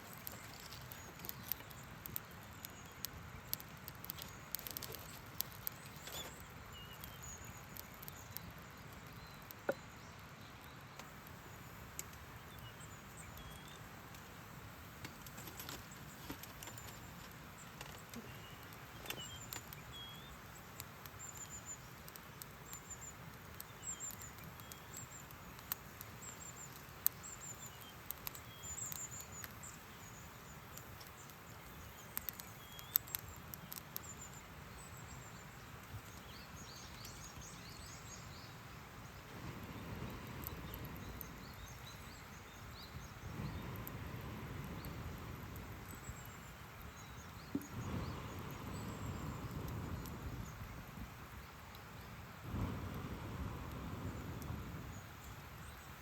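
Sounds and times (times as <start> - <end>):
low hiss: 0.0 - 56.0
small birds chirping: 0.0 - 56.0
light clicks: 0.1 - 9.8, 20.8 - 34.5.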